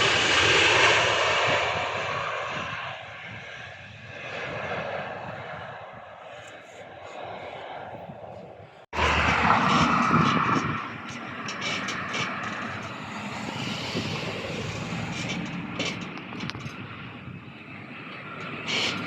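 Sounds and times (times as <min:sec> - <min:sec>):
airplane engines passing: 0:00.0 - 0:19.0.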